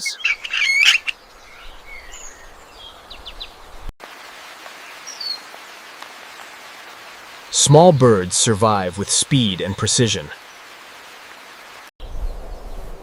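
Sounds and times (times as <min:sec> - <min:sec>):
bird whistle: 0:00.0 - 0:01.1
birds chirping: 0:00.0 - 0:03.9, 0:04.8 - 0:13.0
steady background hiss: 0:00.4 - 0:13.0.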